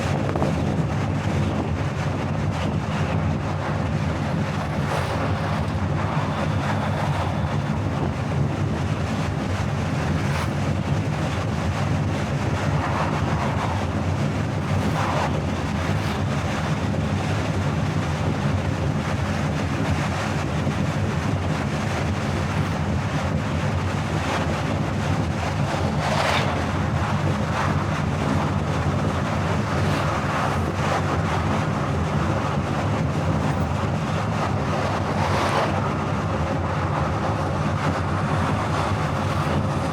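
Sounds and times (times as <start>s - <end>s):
car road and wind noise: 0.0s - 39.9s.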